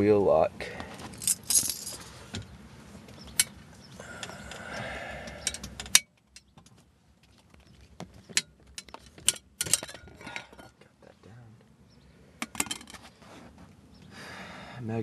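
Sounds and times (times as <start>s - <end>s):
metal lock rustling and clicking: 8.2s - 10.7s.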